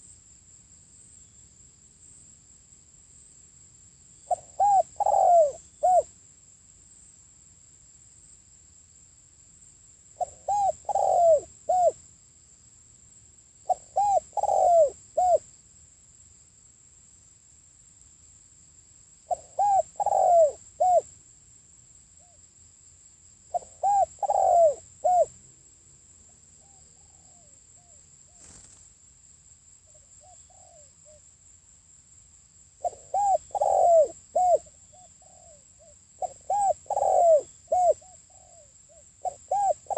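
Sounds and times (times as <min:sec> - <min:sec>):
dove cooing: 0:04.3 - 0:06.1, 0:10.2 - 0:12.0, 0:13.7 - 0:15.4, 0:19.3 - 0:21.1, 0:23.5 - 0:25.3, 0:30.2 - 0:31.2, 0:32.8 - 0:39.9.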